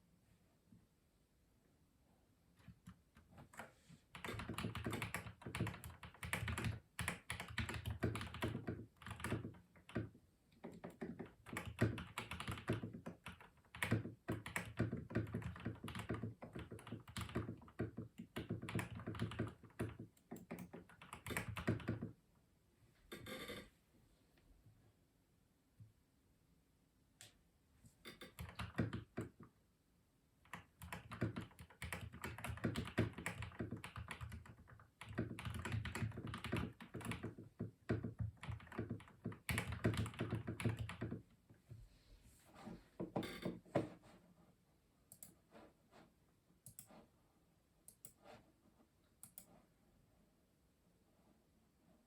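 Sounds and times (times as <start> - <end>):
mechanical keyboard typing: 4.1 - 22.2, 28.1 - 29.4, 30.4 - 41.2.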